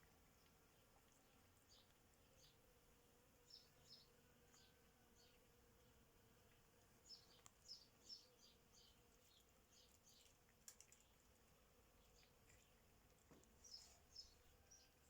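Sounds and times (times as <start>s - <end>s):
faint small bird chirps: 0.0s - 2.6s, 3.4s - 5.4s, 7.0s - 11.3s, 12.0s - 15.0s.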